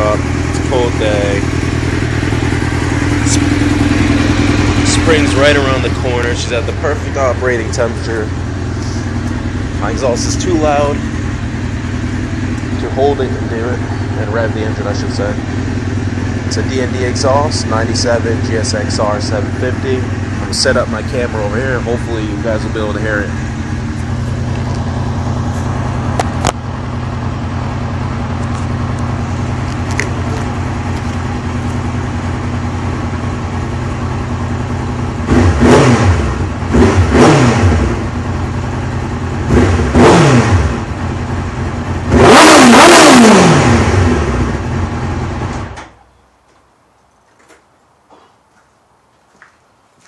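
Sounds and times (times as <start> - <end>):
motorcycle engine idling and revving: 0.0 - 46.2.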